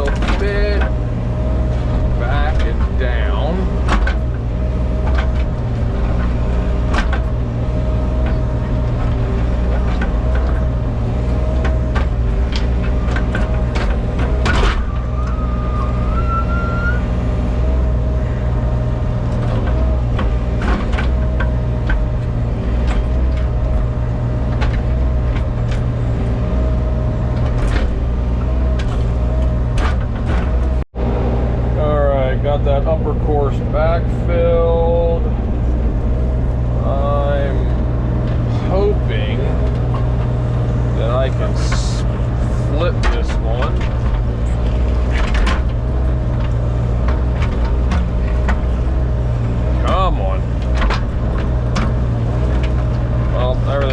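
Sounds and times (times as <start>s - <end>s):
sharp knocks and clanks: 0.0s - 15.3s, 19.1s - 30.8s, 37.8s - 53.9s
heavy equipment engine running: 0.0s - 53.9s
short rising whine: 14.8s - 17.2s.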